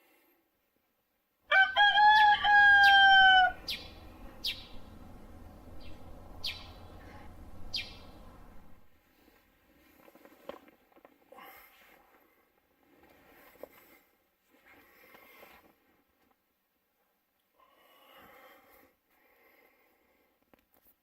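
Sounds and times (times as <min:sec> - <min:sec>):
rooster crowing: 0:01.5 - 0:08.9.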